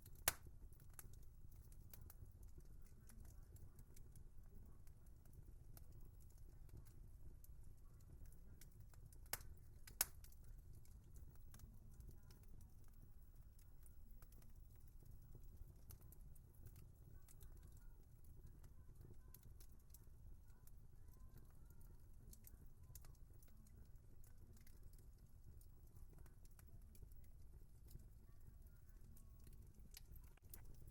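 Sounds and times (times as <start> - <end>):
fire pops: 0.0 - 4.2, 8.2 - 12.6, 29.4 - 30.9
wood fire crackling: 0.0 - 30.9.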